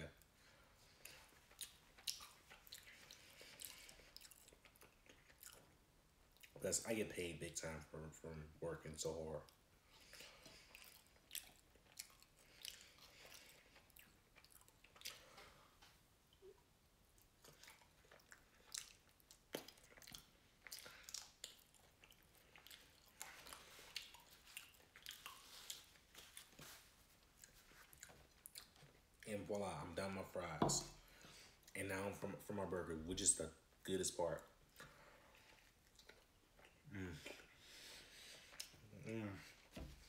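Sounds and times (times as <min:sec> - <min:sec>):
person chewing french fries: 0:00.2 - 0:06.6, 0:09.4 - 0:29.3, 0:34.4 - 0:39.8.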